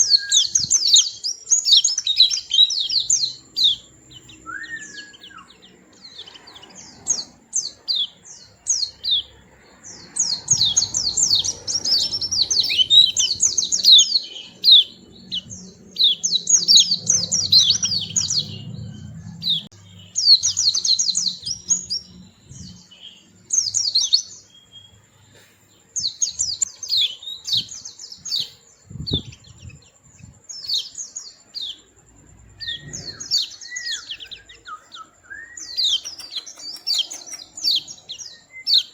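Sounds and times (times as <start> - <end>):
bird twittering chirps: 0.0 - 38.9.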